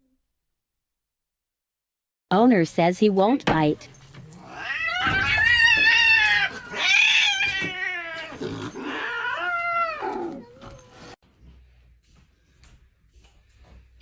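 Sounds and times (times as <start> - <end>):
cat yowling: 4.4 - 11.2.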